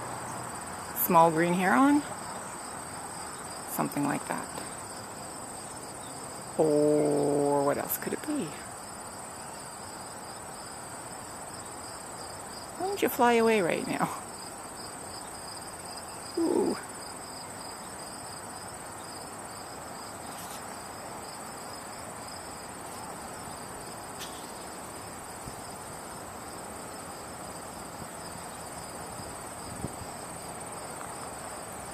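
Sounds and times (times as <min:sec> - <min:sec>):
background hiss: 0:00.0 - 0:31.9
insects trilling: 0:00.0 - 0:31.9.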